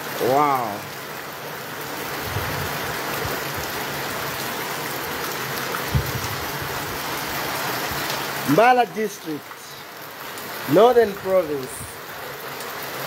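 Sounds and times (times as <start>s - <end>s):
heavy rain pouring: 0.0s - 13.0s
low thump: 5.8s - 6.4s.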